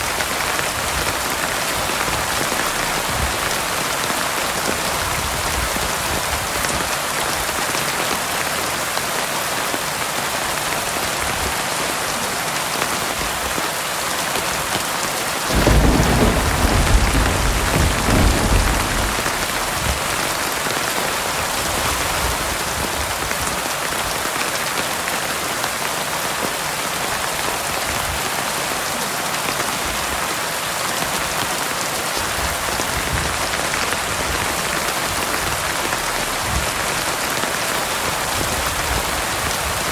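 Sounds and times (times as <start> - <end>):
heavy rain falling: 0.0 - 39.9
thunder rumbling: 0.8 - 5.9, 15.5 - 22.5.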